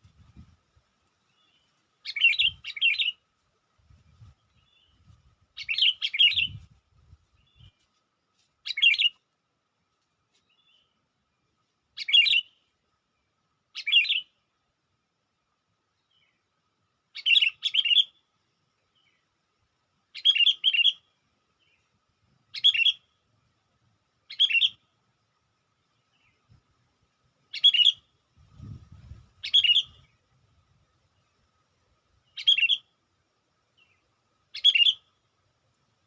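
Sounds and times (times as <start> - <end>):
bulbul calls: 1.4 - 3.2, 5.6 - 6.7, 22.5 - 23.1, 24.3 - 24.8, 27.5 - 28.0, 29.4 - 30.2, 32.3 - 32.9, 34.5 - 35.1.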